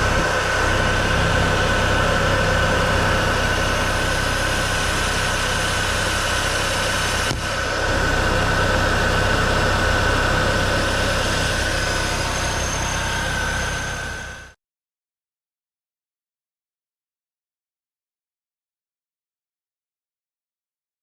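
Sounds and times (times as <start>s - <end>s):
car engine idling with whine: 0.0s - 14.6s.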